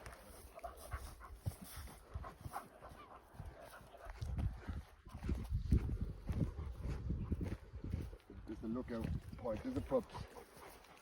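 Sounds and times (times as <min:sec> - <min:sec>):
dog panting softly: 0:00.3 - 0:04.7, 0:09.8 - 0:11.0.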